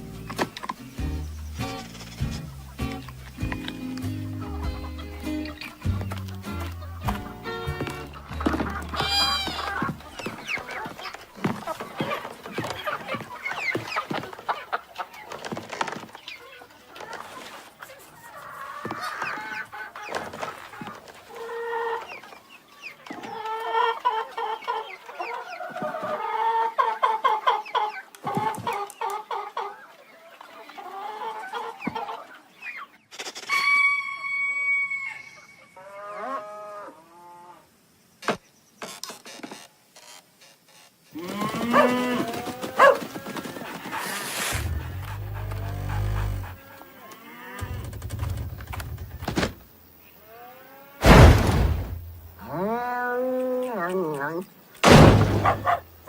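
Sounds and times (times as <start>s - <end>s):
chickens clucking and squawking: 0.0s - 38.0s, 41.2s - 56.0s
chicken long held call: 8.9s - 9.9s, 33.5s - 37.4s.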